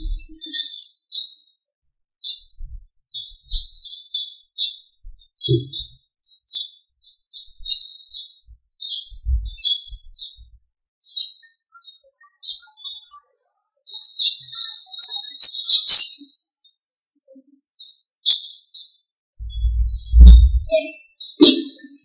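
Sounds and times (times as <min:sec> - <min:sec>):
songbirds chirping and twittering: 0:00.0 - 0:22.0
low thumps: 0:09.2 - 0:09.6, 0:19.4 - 0:20.8.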